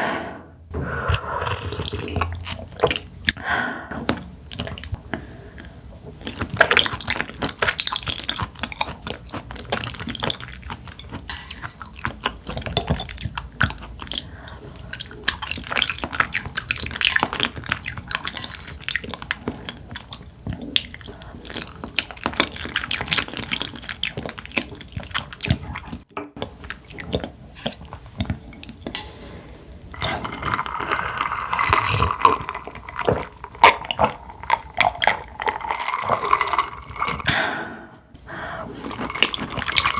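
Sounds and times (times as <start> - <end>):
wet chewing: 1.0 - 3.4, 4.0 - 29.0, 29.9 - 37.4, 38.1 - 39.9.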